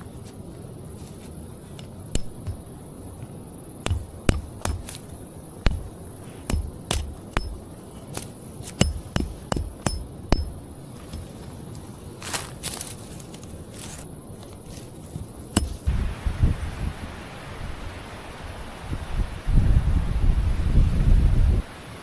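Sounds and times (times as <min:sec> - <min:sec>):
steady high hiss: 0:00.0 - 0:22.0
sharp knocks and clinks: 0:06.5 - 0:11.3.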